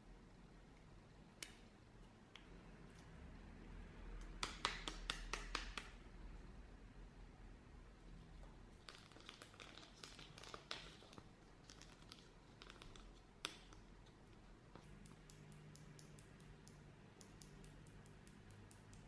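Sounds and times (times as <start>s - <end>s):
crinkling and clicking materials: 8.4s - 19.0s.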